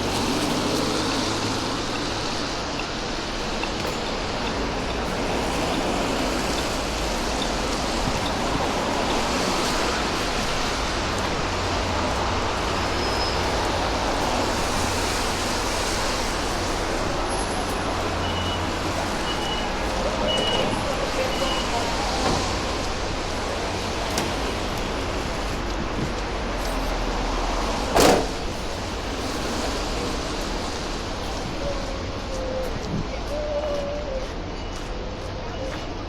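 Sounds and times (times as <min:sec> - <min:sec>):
passing vehicle rumble: 0:00.0 - 0:35.1
city street traffic: 0:00.0 - 0:36.0.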